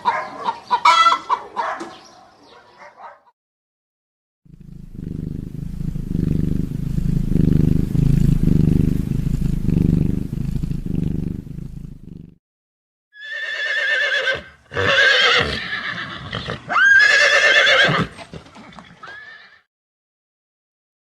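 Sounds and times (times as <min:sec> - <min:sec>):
cat purring: 0:04.5 - 0:12.4.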